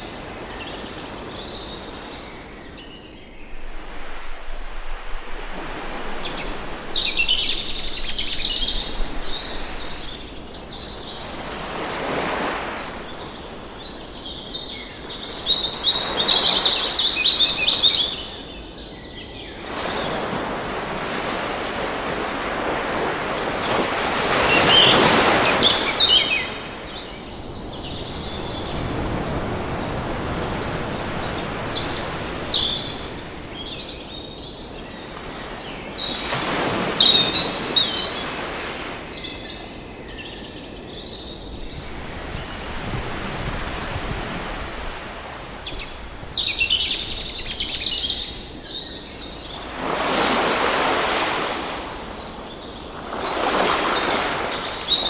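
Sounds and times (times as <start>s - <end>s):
songbirds chirping and trilling: 0.0s - 4.2s, 5.7s - 55.0s
surf washing in and out: 0.0s - 55.0s.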